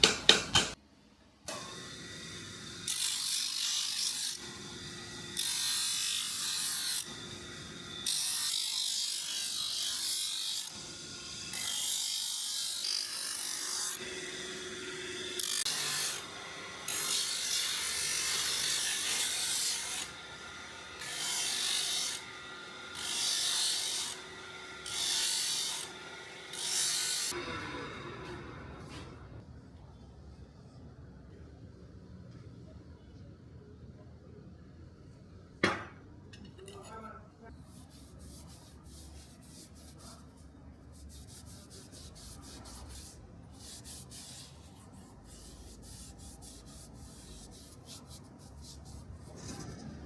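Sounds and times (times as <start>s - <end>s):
knife blade scraping on abrasive: 41.0s - 49.3s.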